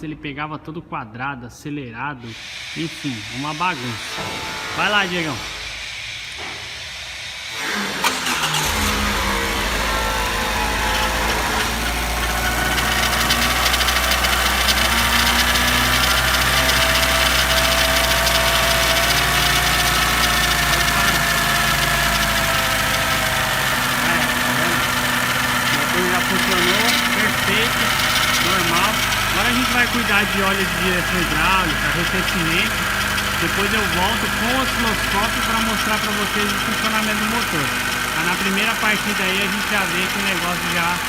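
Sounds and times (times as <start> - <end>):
car engine starting and idling: 7.7 - 41.0.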